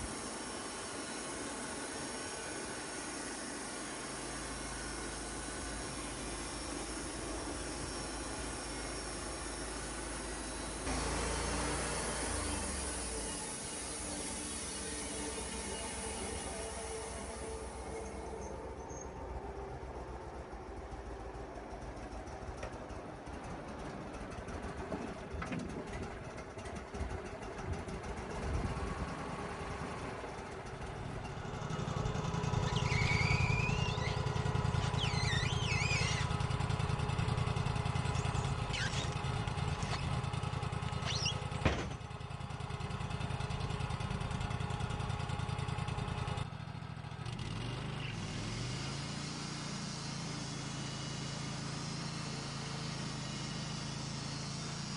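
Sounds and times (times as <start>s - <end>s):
engine running: 0.0s - 54.9s
high squeals: 31.2s - 40.2s, 40.9s - 41.6s.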